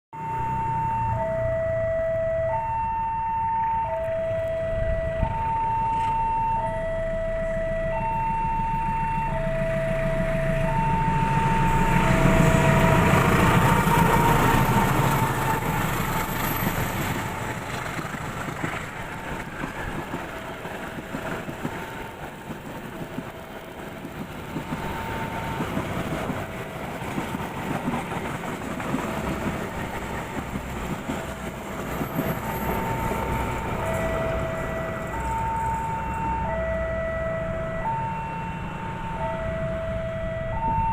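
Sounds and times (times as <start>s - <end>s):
level crossing alarm two-note tone: 0.2s - 12.8s, 33.8s - 40.9s
train rumble: 0.2s - 40.9s.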